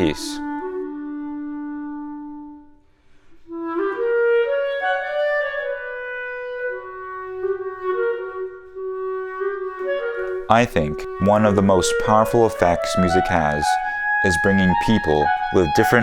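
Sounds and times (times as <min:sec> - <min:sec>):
solo clarinet melody: 0:00.0 - 0:16.0.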